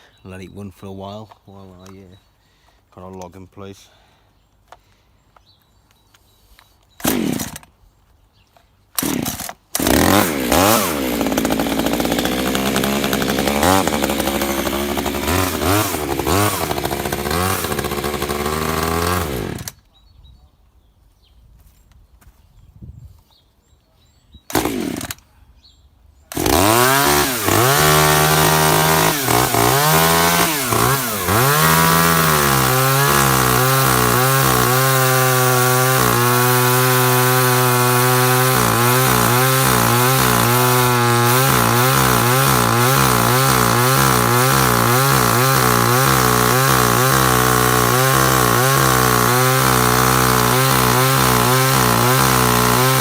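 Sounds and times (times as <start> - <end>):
chainsaw engine revving: 7.0 - 7.7, 9.0 - 19.8, 24.5 - 25.2, 26.3 - 53.0.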